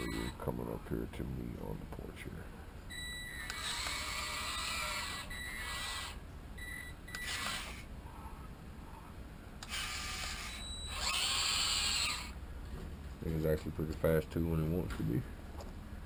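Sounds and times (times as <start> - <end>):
toy electric motor whirring: 0.0 - 0.4, 3.3 - 6.2, 7.1 - 7.9, 9.6 - 12.4.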